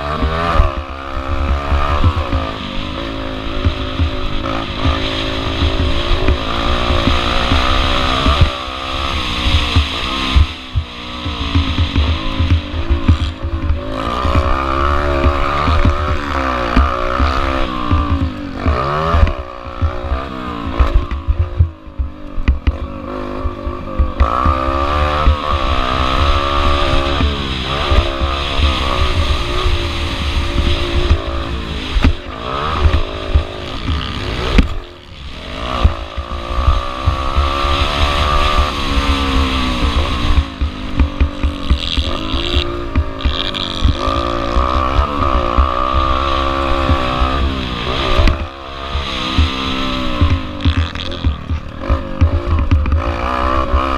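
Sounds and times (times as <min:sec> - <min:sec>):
motorbike engine revving: 0:00.0 - 0:53.9
thumping on microphone: 0:01.4 - 0:35.0, 0:35.6 - 0:53.9.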